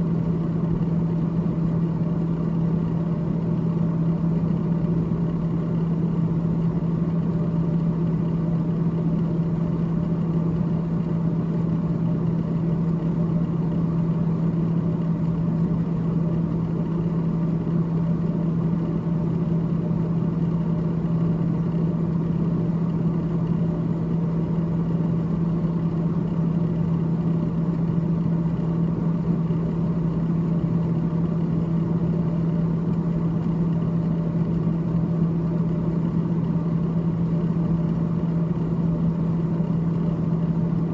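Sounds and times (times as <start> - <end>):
freezer fan humming: 0.0 - 40.9.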